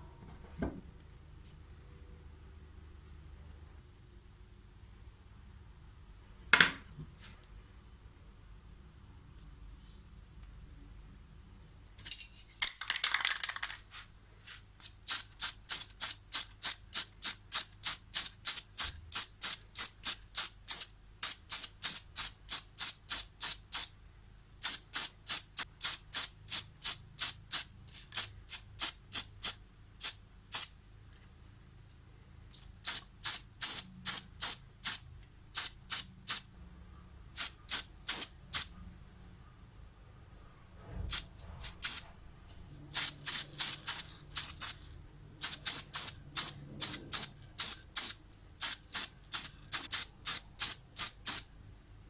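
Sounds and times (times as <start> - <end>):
spray can ball rattling: 12.6 - 14.0, 14.8 - 23.6, 41.1 - 42.0, 42.9 - 51.4
spray can hissing bursts: 14.8 - 23.9, 24.6 - 30.7, 32.8 - 35.0, 35.6 - 36.4, 37.4 - 38.7, 41.1 - 42.0, 42.9 - 44.8, 45.4 - 51.4.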